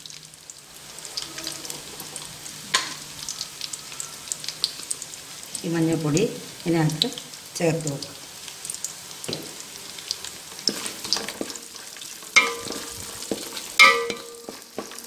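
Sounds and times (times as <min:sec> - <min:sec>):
coconut sizzling in oil: 0:00.0 - 0:15.0
spatula scraping metal pan: 0:10.7 - 0:15.0
spatula knocking ringing pan: 0:12.4 - 0:15.0.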